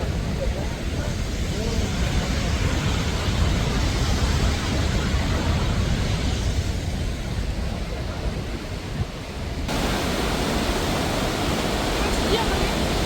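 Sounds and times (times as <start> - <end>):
waterfall rushing: 9.7 - 13.0.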